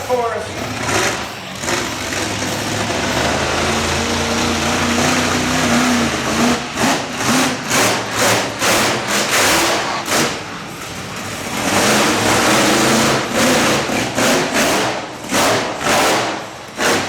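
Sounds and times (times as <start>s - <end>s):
monster truck engine revving: 0.0s - 17.0s.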